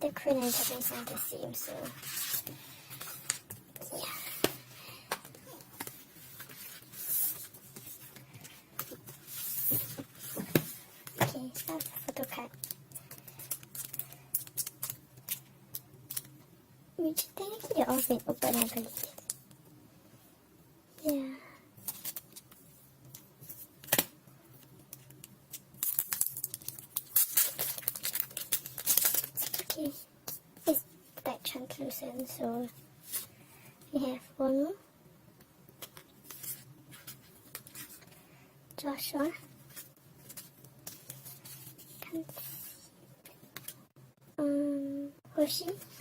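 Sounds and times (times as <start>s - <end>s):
crinkly packaging rustling: 0.1s - 16.4s, 17.0s - 19.5s, 21.8s - 30.8s
paper or plastic rustling: 0.3s - 3.5s, 17.4s - 19.3s, 25.8s - 30.0s.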